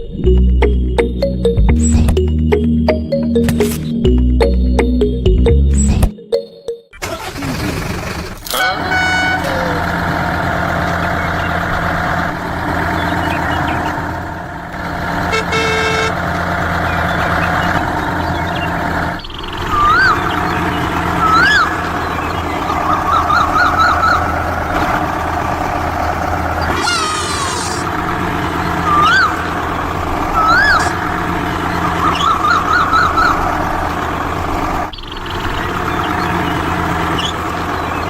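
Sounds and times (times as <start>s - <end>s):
truck engine running: 0.0s - 6.1s, 7.0s - 38.0s
whistle-like toots: 19.7s - 20.2s, 21.2s - 21.8s, 28.8s - 29.5s, 30.3s - 31.0s.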